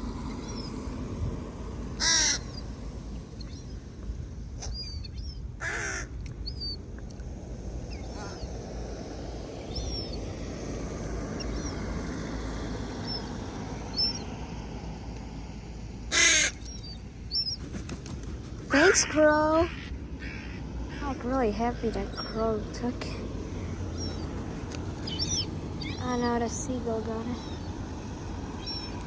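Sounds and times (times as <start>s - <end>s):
crow cawing: 2.0s - 2.5s, 5.6s - 6.1s, 16.1s - 17.0s, 19.7s - 21.0s.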